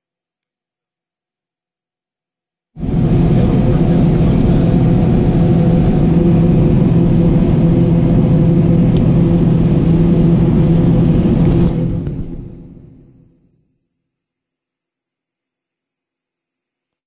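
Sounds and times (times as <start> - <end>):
combine harvester running: 2.8 - 13.4.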